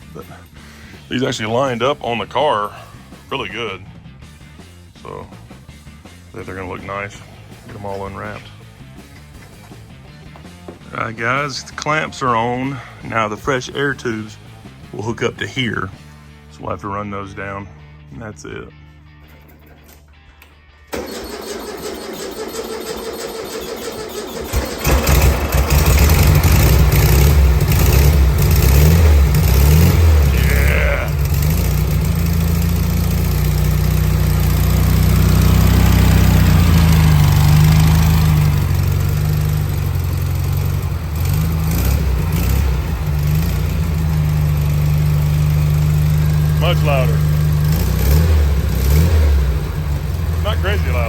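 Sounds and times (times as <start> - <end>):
car engine cranking: 20.9 - 51.0
car engine revving: 21.0 - 51.0.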